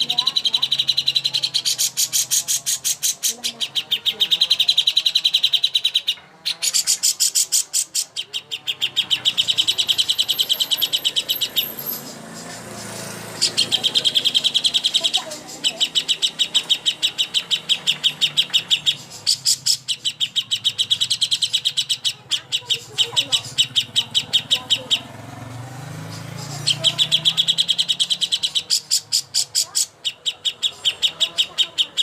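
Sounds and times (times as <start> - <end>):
songbird rattling high notes: 8.8 - 32.0.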